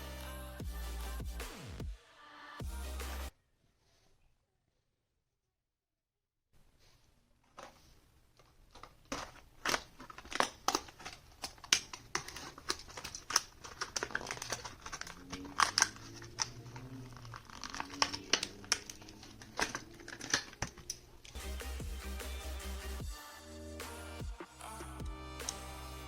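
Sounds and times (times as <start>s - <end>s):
plastic packaging crinkling: 7.5s - 21.4s.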